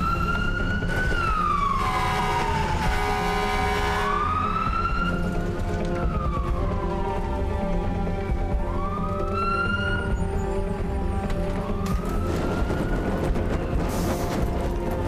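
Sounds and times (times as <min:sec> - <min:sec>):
fire engine siren wailing: 0:00.0 - 0:15.0
horn blast: 0:01.7 - 0:04.5.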